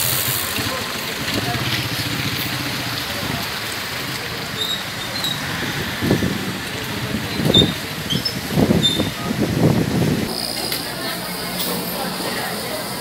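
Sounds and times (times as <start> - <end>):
heavy rain on umbrella: 0.0 - 10.3
road traffic: 0.0 - 13.0.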